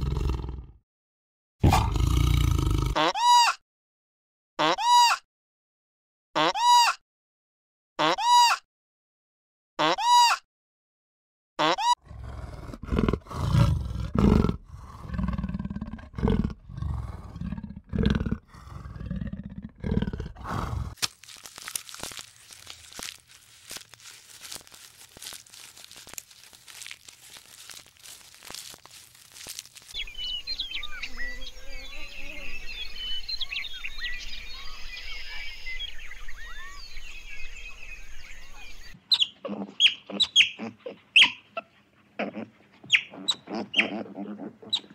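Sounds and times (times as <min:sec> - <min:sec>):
giraffe crunching leaves: 0:20.0 - 0:30.7
short high chirping calls: 0:39.1 - 0:40.6.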